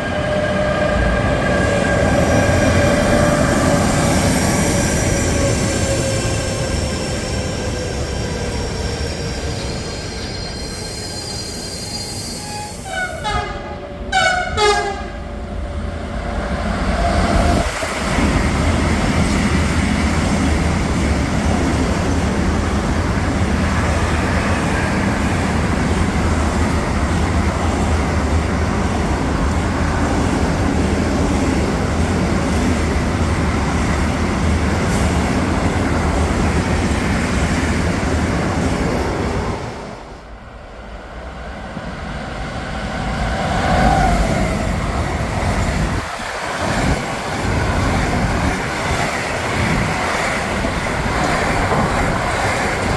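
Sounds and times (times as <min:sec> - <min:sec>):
train wheel and rail noise: 0:00.0 - 0:52.9
train horn blasts: 0:12.3 - 0:15.4.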